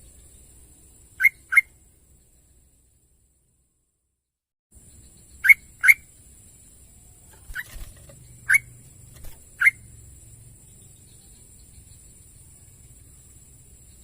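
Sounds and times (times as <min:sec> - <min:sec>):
steady high-pitched hiss: 0:00.0 - 0:03.8, 0:04.8 - 0:14.0
bird calling whistled notes: 0:01.2 - 0:01.7.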